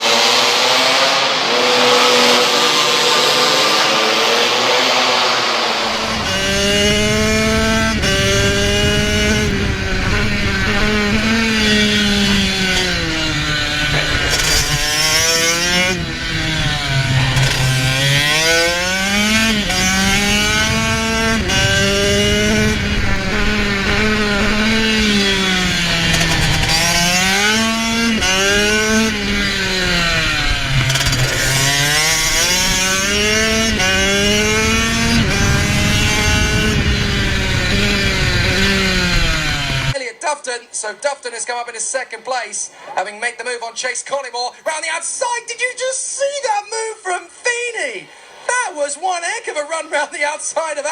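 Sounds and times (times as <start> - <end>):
harsh noisy sound: 0.0 - 39.6
motorcycle engine revving: 0.0 - 40.0.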